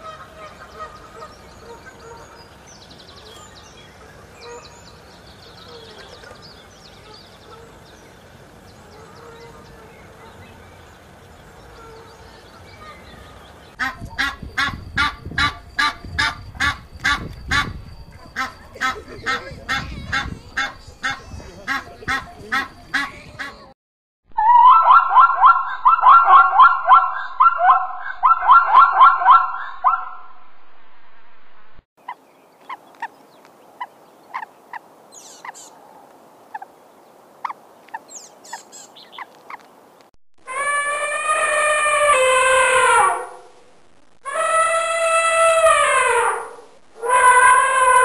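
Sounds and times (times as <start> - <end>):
waterfowl honking: 0.0 - 2.4, 13.8 - 23.7
thin high bird chirps: 35.1 - 35.8.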